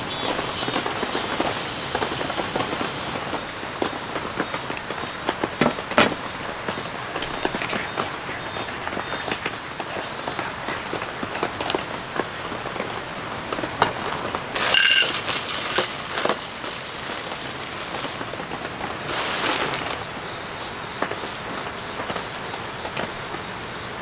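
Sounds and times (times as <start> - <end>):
rain pattering on a tent: 0.0 - 24.0
cereal pouring into metal bowl: 14.6 - 18.5, 19.1 - 20.0
packet crinkling: 14.6 - 22.5.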